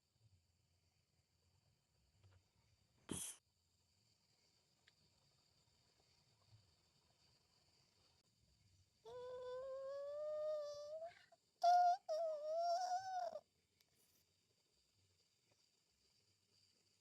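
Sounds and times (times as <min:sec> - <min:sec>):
high voice humming: 0:09.1 - 0:13.4.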